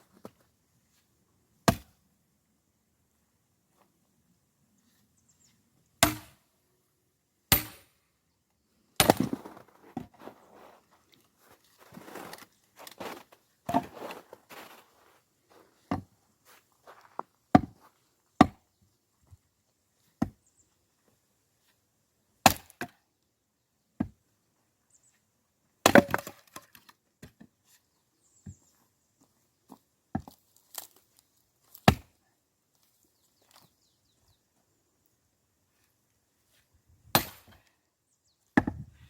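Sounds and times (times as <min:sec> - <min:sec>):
axe chopping firewood: 0:01.6 - 0:02.0, 0:06.0 - 0:06.4, 0:07.5 - 0:07.9, 0:09.0 - 0:10.1, 0:13.7 - 0:14.0, 0:15.8 - 0:16.1, 0:17.5 - 0:17.8, 0:18.4 - 0:18.6, 0:22.4 - 0:23.0, 0:25.8 - 0:26.7, 0:31.8 - 0:32.1, 0:37.1 - 0:37.7, 0:38.6 - 0:38.8.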